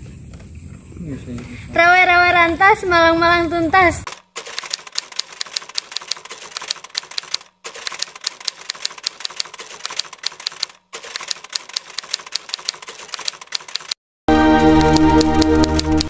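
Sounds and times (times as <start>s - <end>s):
typewriter keys clacking: 4.1s - 14.0s, 14.8s - 16.0s.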